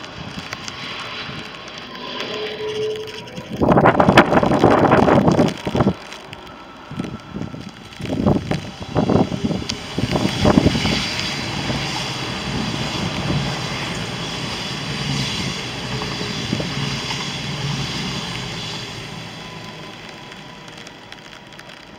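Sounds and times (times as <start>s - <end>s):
passenger train running at speed: 0.0s - 21.9s
wind buffeting microphone: 3.3s - 20.3s.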